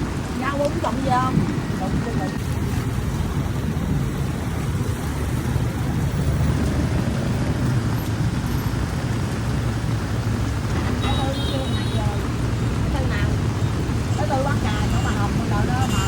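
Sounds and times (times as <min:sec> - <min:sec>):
heavy rain hissing: 0:00.0 - 0:16.0
street traffic rumble: 0:00.0 - 0:16.0.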